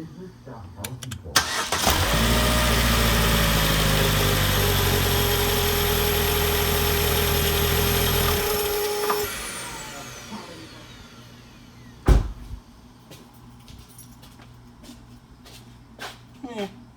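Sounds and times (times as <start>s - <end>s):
car engine running: 1.4s - 11.7s
engine whine winding down: 1.4s - 12.0s.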